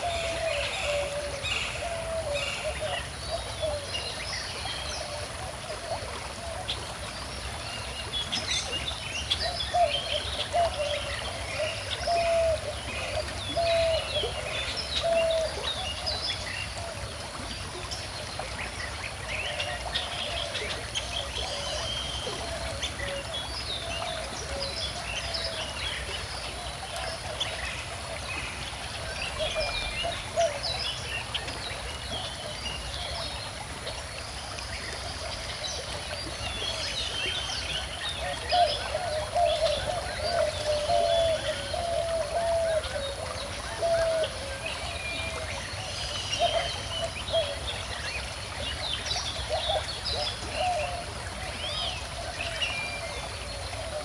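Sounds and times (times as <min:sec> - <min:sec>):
stream trickling: 0:00.0 - 0:54.0
birds singing and chirping: 0:36.1 - 0:48.3.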